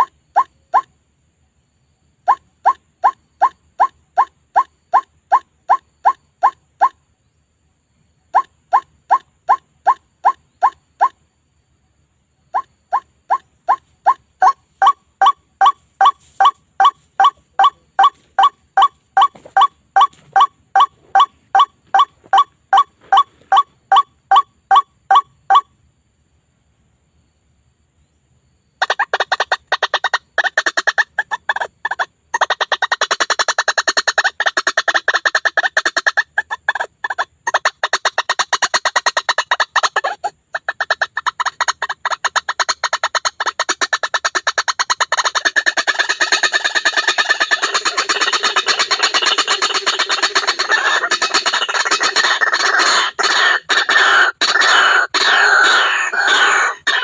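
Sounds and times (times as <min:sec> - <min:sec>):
evenly spaced bird calls: 0:00.0 - 0:57.0
fast harsh bird calls: 0:28.8 - 0:57.0.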